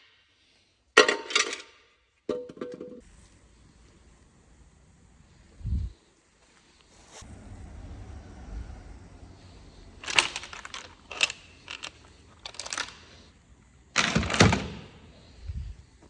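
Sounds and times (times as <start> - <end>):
metal tools clattering: 10.0 - 13.2.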